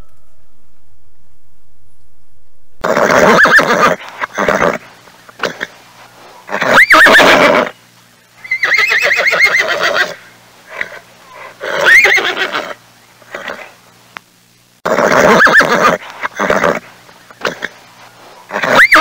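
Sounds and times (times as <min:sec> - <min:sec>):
horse neighing: 0:02.8 - 0:05.7, 0:06.5 - 0:07.7, 0:08.5 - 0:10.2, 0:11.6 - 0:13.7, 0:14.8 - 0:16.8, 0:18.5 - 0:19.0.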